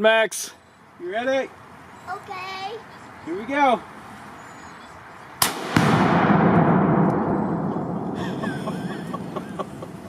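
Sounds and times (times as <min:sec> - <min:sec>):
rifle shot: 0:05.4 - 0:08.5
explosion boom rumbling: 0:05.5 - 0:10.0.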